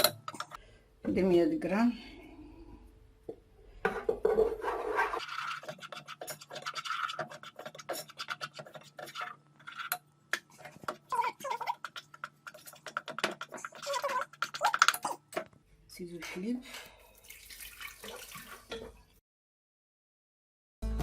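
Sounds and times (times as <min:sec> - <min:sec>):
utensil scraping a saucepan: 0:03.9 - 0:15.2.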